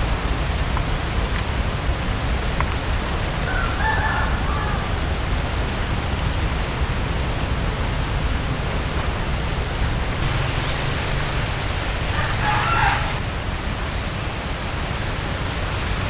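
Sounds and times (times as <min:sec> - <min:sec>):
rushing noise with low rumble: 0:04.8 - 0:16.0.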